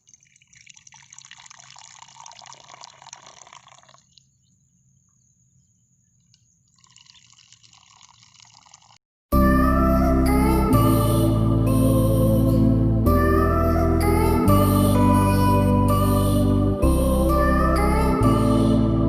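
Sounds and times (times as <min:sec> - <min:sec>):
tea pouring into cups: 0:00.0 - 0:04.2, 0:06.7 - 0:09.0.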